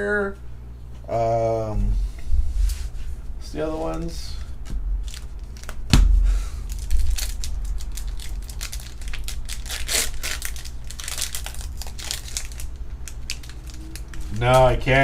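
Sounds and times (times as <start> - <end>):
foil wrappers crinkling and tearing: 5.0 - 5.8, 6.6 - 14.8.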